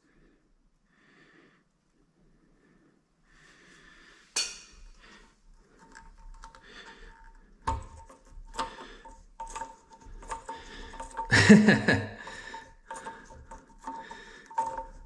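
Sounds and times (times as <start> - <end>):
plastic parts clicking and knocking: 5.6 - 15.0
plastic scraping rattle: 5.7 - 15.0.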